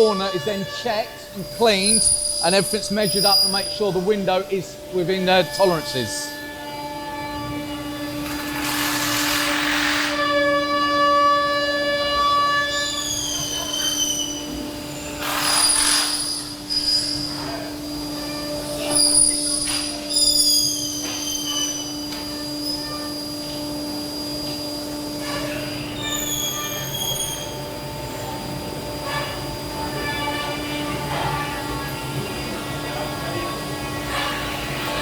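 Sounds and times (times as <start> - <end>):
machinery humming: 0.0 - 12.2, 21.8 - 35.0
high squealing tones: 0.0 - 17.5.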